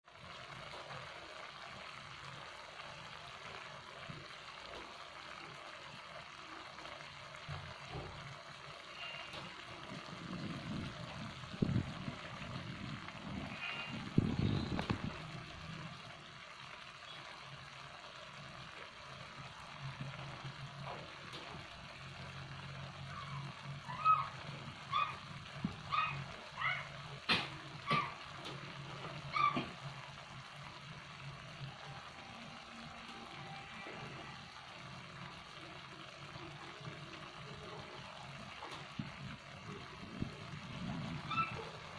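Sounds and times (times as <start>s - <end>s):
butter sauce sizzling in a wok: 0.1s - 41.9s.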